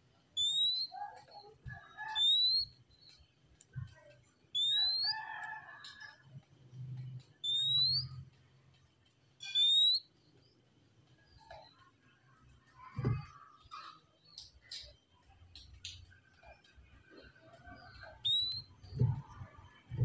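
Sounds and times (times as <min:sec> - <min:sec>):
bird whistling rising notes: 0:00.4 - 0:01.0, 0:02.1 - 0:02.8, 0:04.6 - 0:05.3, 0:07.4 - 0:08.2, 0:09.4 - 0:10.1, 0:17.9 - 0:19.3
bird chattering: 0:00.4 - 0:02.7, 0:04.6 - 0:05.2, 0:07.4 - 0:08.2, 0:09.4 - 0:10.0, 0:17.8 - 0:18.8.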